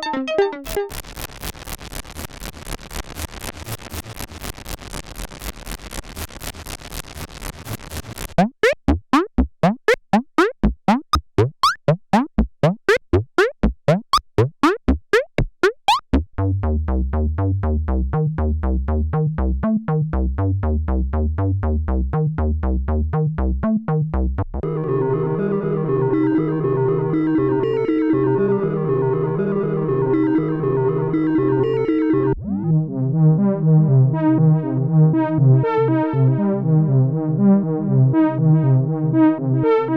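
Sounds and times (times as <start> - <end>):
synthesizer sequence: 8.4 - 16.3.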